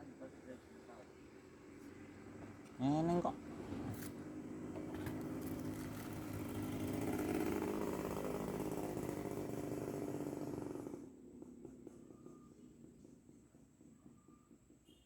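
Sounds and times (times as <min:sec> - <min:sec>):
small engine running: 0:04.5 - 0:12.2.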